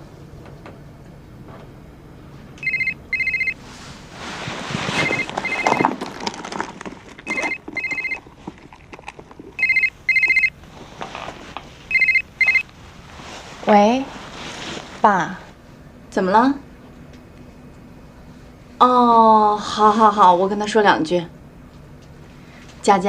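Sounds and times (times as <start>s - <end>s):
mobile phone ringing: 2.6s - 3.6s, 4.9s - 6.0s, 7.2s - 8.3s, 9.6s - 10.6s, 11.9s - 12.7s
rustling: 2.6s - 15.2s.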